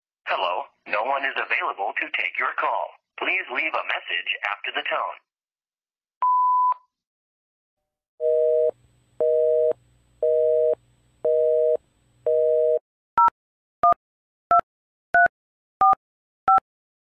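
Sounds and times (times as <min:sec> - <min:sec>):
voicemail beep: 0:06.2 - 0:06.9
telephone busy signal: 0:08.2 - 0:12.8.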